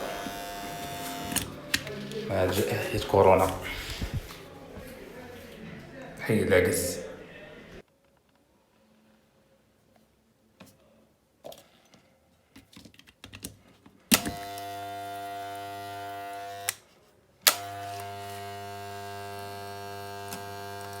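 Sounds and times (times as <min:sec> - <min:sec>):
hair clipper buzzing: 0:00.0 - 0:04.3, 0:14.1 - 0:16.8, 0:17.5 - 0:21.0.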